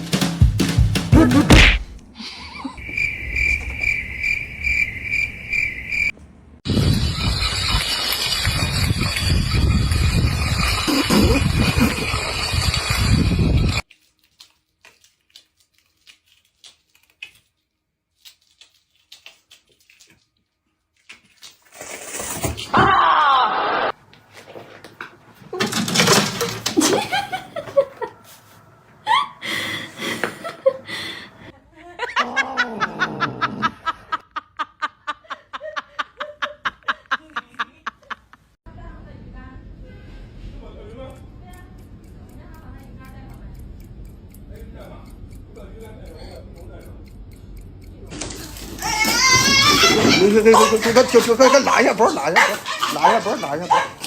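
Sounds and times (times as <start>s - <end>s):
person laughing hard: 1.1s - 2.8s, 10.9s - 12.2s, 22.8s - 23.9s, 29.0s - 38.4s, 49.1s - 51.8s, 52.4s - 53.7s.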